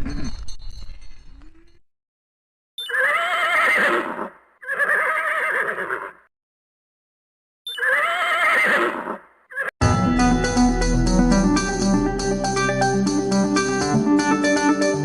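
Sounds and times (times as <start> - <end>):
farm animal quavering calls: 2.8 - 6.3, 7.7 - 9.7.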